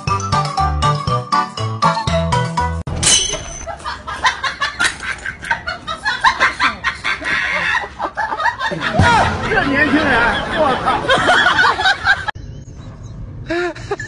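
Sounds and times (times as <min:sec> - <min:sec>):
woman giggling and squealing: 0:03.6 - 0:08.1, 0:13.5 - 0:14.0.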